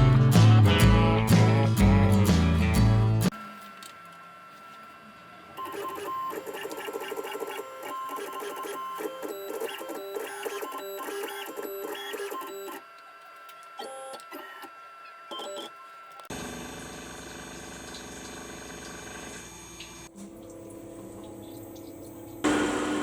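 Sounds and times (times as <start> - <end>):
drive motors whirring buzz: 3.3 - 20.1, 22.4 - 23.0
steady high whine: 22.4 - 23.0.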